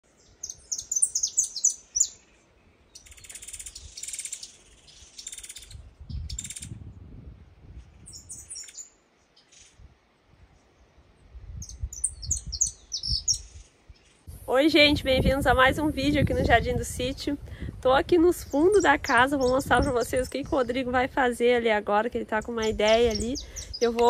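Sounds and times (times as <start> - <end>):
birds chirping: 0.0 - 6.7, 7.9 - 9.8, 11.6 - 14.3, 18.2 - 24.0.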